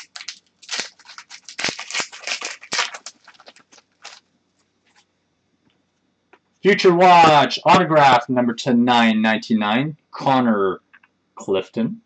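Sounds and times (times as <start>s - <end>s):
trading cards rustling: 0.0s - 4.2s.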